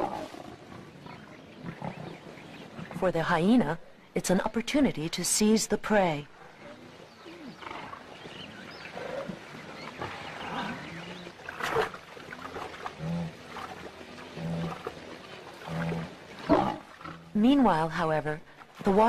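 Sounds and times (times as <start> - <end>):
animal growls: 6.6 - 17.4.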